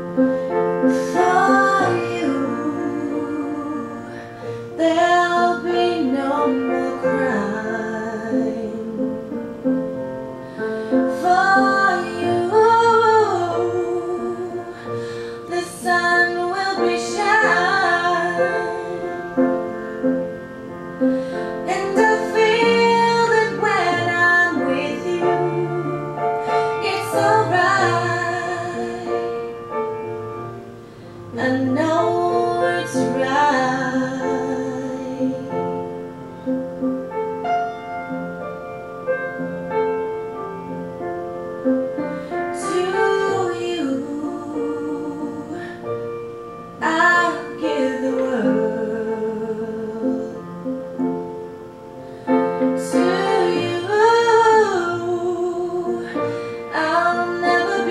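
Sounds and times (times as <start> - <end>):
piano accompaniment: 0.0 - 57.9
woman singing: 0.8 - 9.5, 10.8 - 19.7, 21.2 - 29.6, 31.3 - 35.9, 42.5 - 50.8, 52.6 - 57.9.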